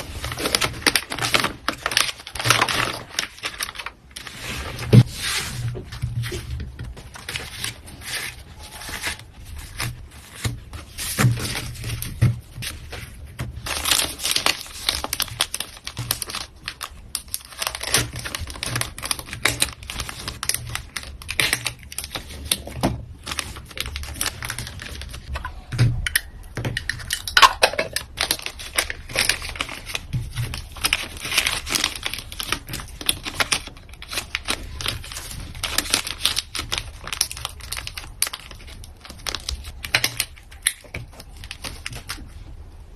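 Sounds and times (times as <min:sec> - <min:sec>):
plastic packaging crinkling: 0:00.0 - 0:42.6.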